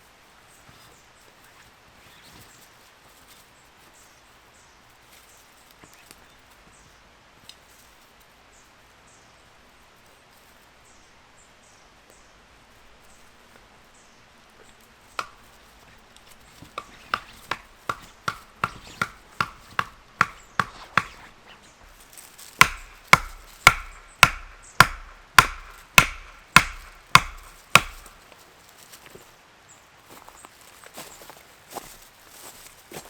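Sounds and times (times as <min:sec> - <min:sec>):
hammer striking metal tent peg: 0:15.2 - 0:15.4, 0:16.8 - 0:21.3, 0:22.6 - 0:28.2.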